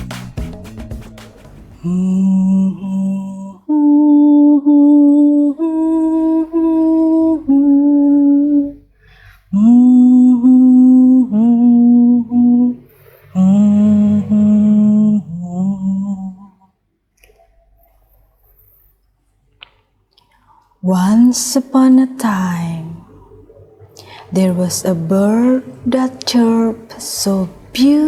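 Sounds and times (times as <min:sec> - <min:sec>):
person humming: 0:01.8 - 0:08.9, 0:09.5 - 0:16.6.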